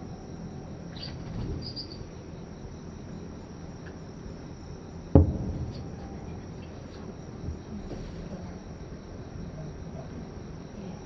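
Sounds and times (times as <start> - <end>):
faint crickets chirping: 0.0 - 11.0
distant firework boom: 5.1 - 6.3.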